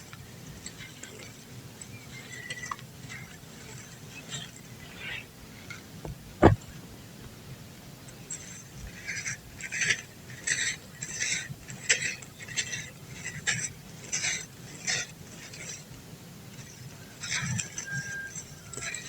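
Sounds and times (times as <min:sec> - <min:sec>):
dry dirt crunching: 0:06.0 - 0:06.7.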